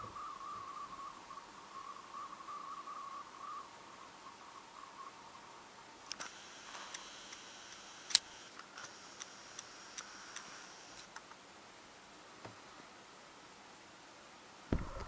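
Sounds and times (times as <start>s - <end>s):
evenly spaced ticks: 6.0s - 11.4s
sharp clicks: 6.0s - 11.4s
hiss: 6.1s - 11.1s.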